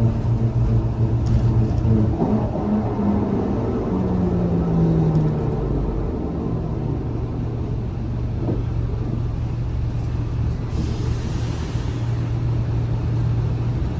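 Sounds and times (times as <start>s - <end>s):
bus engine idling: 5.6s - 13.9s.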